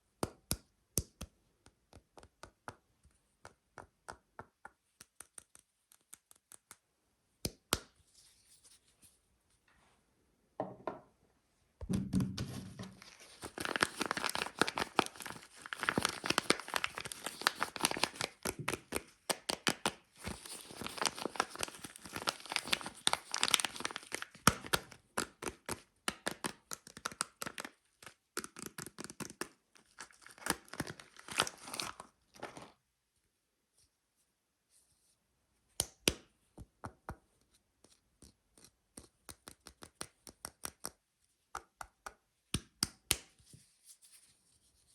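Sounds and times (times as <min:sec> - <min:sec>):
packaging tearing and crinkling: 0:13.0 - 0:25.0, 0:29.0 - 0:32.7.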